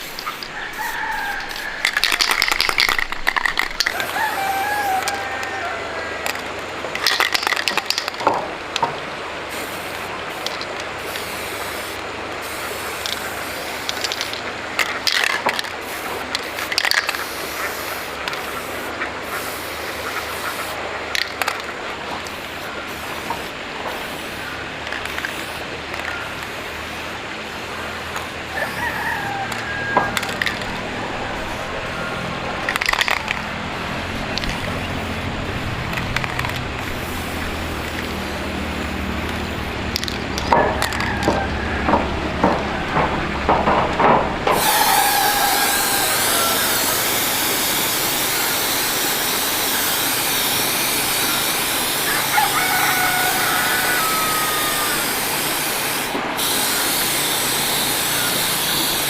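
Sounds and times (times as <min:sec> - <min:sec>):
arc welding crackling hiss: 0:00.0 - 0:08.8, 0:09.4 - 0:32.0, 0:33.8 - 0:41.6, 0:44.5 - 0:59.0
sharp metallic knocks: 0:40.1 - 0:44.7.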